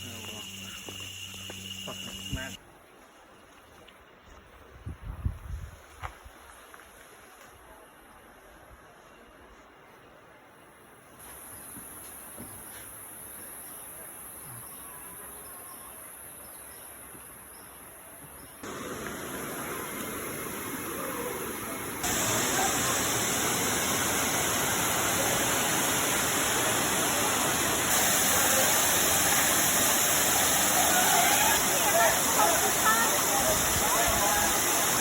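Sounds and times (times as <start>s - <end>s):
insects trilling: 0.0s - 2.6s
waterfall rushing: 18.6s - 35.0s.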